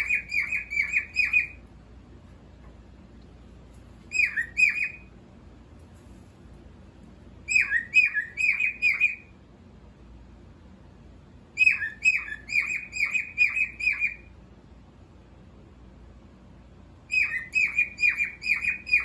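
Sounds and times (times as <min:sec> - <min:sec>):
cockatiel chirping: 0:00.0 - 0:01.6, 0:04.1 - 0:05.1, 0:07.4 - 0:09.3, 0:11.6 - 0:14.3, 0:17.1 - 0:19.0.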